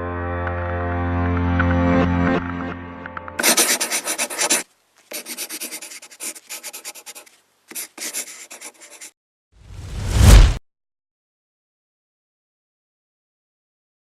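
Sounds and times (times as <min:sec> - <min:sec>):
background music: 0:00.0 - 0:04.2
scratchy rubbing strokes: 0:03.4 - 0:09.2.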